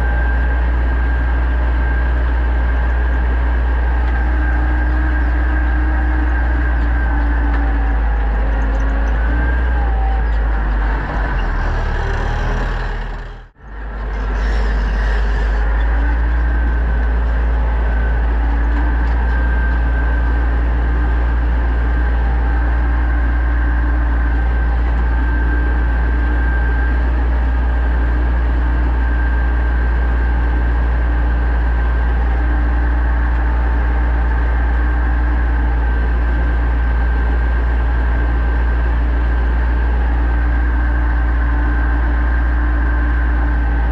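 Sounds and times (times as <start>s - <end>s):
tractor diesel engine drone: 0.0s - 43.9s.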